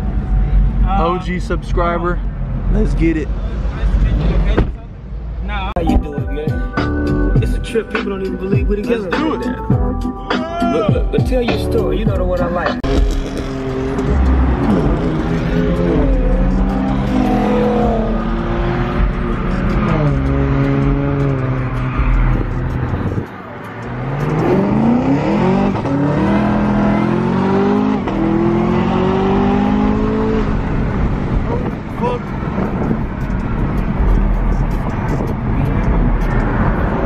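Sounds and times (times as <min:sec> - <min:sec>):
car engine accelerating: 0:11.8 - 0:37.0.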